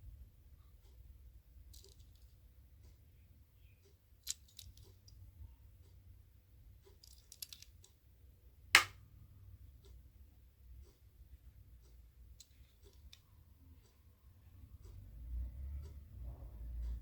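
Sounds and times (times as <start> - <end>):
toy car clicks and taps: 1.7 - 2.3, 4.2 - 5.2, 6.8 - 8.0.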